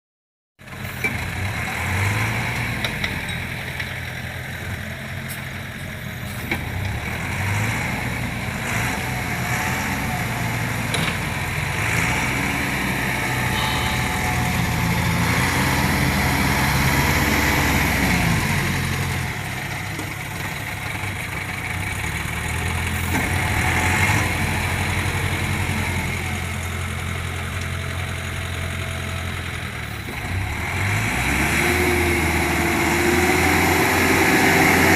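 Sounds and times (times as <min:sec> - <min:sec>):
excavator diesel engine working: 0:00.6 - 0:34.9.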